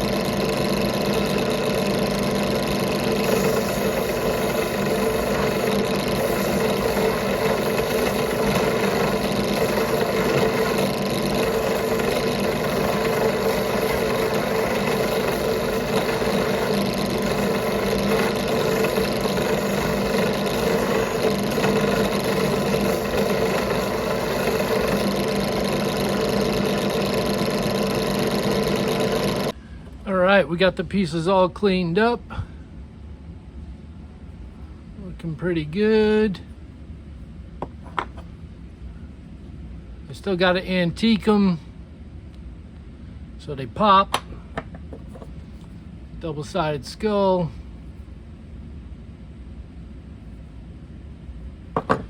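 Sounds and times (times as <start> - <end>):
motor-driven machine humming: 0.0 - 30.0.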